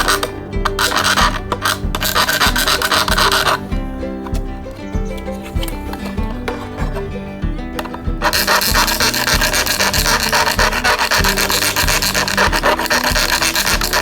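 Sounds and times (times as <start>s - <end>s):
background music: 0.0s - 14.0s
tool rasping over a surface: 8.2s - 14.0s.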